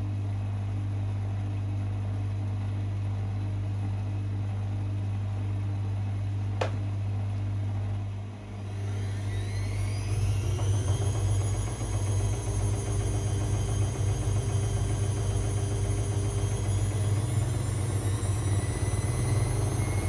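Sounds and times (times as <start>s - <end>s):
washing machine humming: 0.0s - 20.0s
drum motor whine rising: 8.4s - 20.0s.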